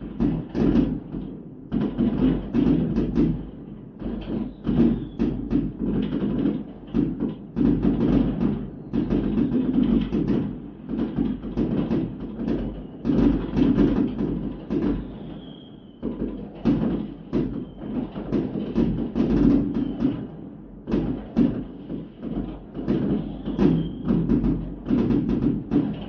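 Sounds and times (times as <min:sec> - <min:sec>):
fireworks bangs and crackles: 0:00.0 - 0:26.0
high firework whistle: 0:04.4 - 0:05.5, 0:14.7 - 0:18.2, 0:19.5 - 0:20.3, 0:22.9 - 0:24.6.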